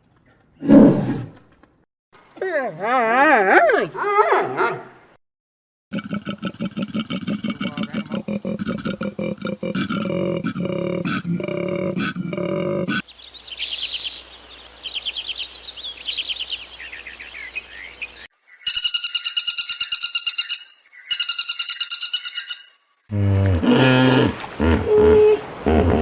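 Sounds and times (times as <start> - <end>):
trilled bird song: 13.0 - 22.8
lower pitched animal call: 18.7 - 26.0.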